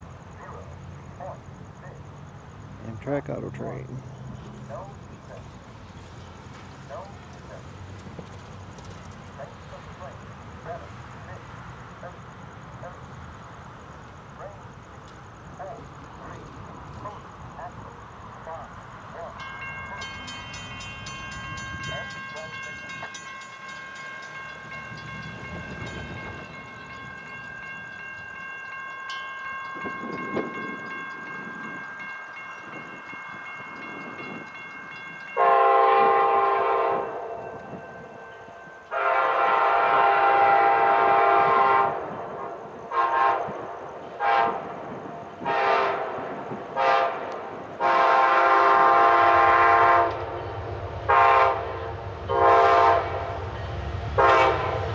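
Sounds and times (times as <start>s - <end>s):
railroad crossing bell: 2.8s - 54.9s
train horn blasts: 35.2s - 37.5s, 38.9s - 53.5s, 54.1s - 54.9s.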